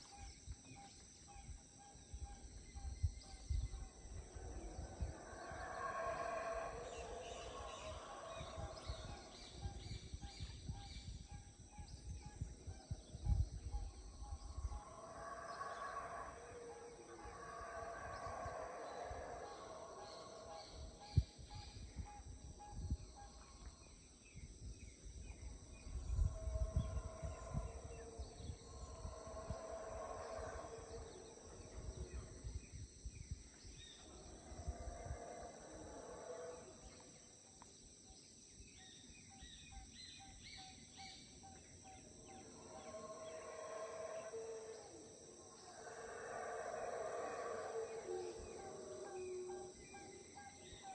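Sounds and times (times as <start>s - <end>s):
low rumble of wind: 0.0s - 36.2s
wild animal calls: 4.2s - 9.3s, 14.3s - 21.0s, 25.9s - 32.3s, 42.3s - 50.9s.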